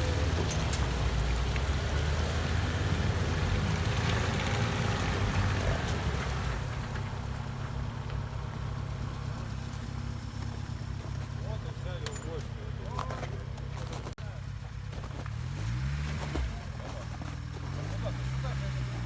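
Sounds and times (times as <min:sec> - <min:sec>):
off-road vehicle engine running: 0:00.0 - 0:19.0.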